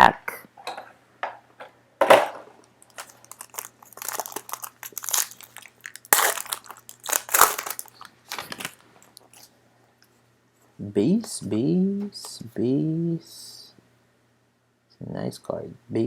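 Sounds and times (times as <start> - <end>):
plastic foil wrapper crinkling: 2.8 - 9.5.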